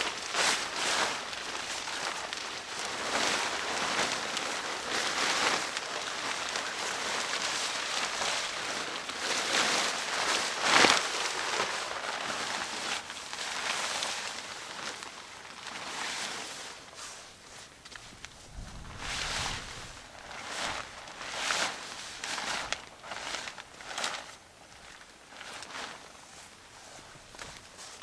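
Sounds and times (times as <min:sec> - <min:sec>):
rain falling: 0:18.2 - 0:21.5.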